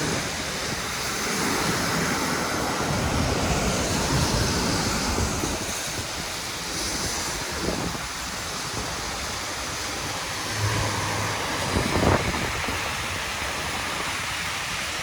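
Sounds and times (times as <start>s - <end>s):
tyres hissing on wet pavement: 0.0s - 15.0s
wind on microphone: 0.0s - 15.0s.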